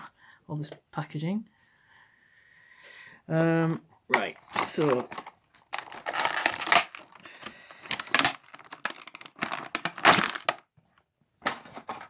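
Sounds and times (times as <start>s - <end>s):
packaging crinkling: 4.1s - 10.6s.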